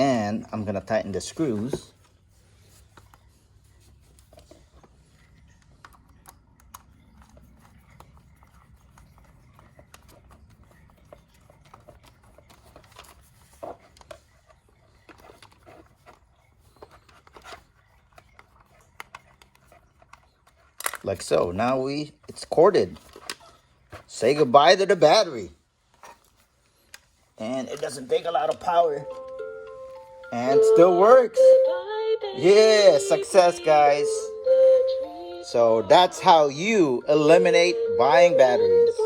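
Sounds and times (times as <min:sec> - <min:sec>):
plastic being handled: 0:00.6 - 0:30.3.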